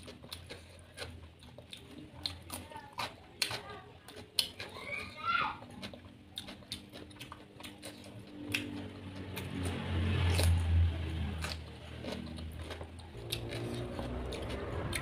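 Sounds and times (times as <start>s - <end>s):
chewing crisp cucumber: 0.0s - 15.0s
low rumble: 13.2s - 15.0s.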